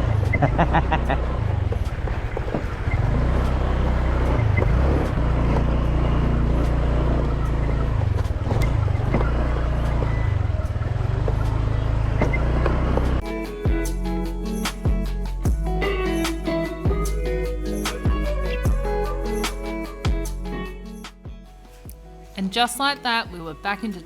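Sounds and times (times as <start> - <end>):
scooter engine rumble: 0.0 - 13.2
music: 13.0 - 24.0.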